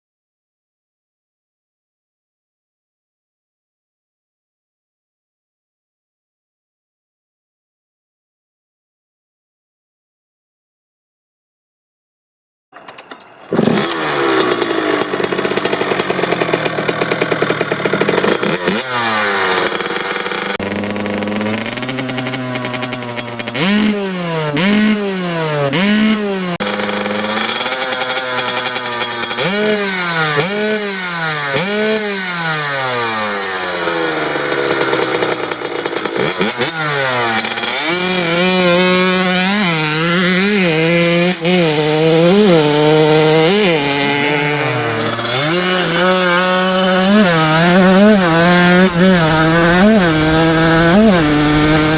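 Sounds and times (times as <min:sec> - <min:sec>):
dirt bike engine revving: 0:12.8 - 0:51.9.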